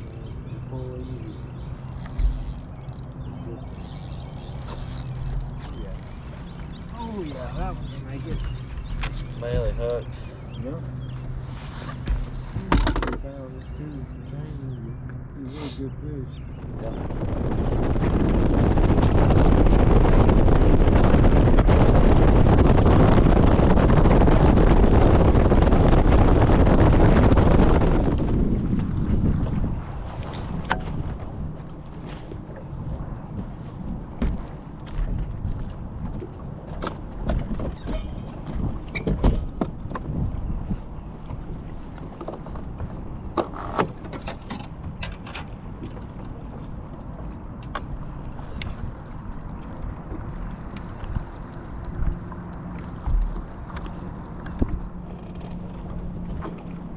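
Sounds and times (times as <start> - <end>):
fishing gear clicking and knocking: 0.0 - 7.4, 8.3 - 10.0, 12.2 - 13.2, 43.4 - 48.8
wind and water rumble: 0.0 - 56.9
wind rushing over microphone: 16.0 - 44.0.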